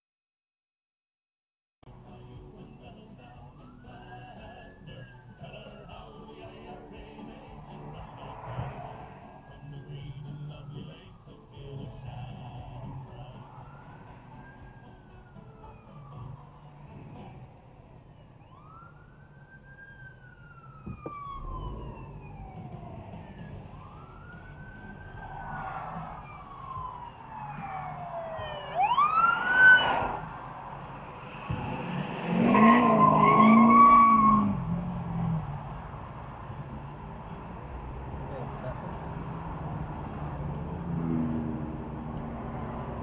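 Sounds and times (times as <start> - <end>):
road rumble: 1.8 - 43.0
police siren wailing: 3.4 - 6.1, 7.4 - 35.4
steady-pitched siren blast: 8.1 - 17.4, 18.4 - 35.4.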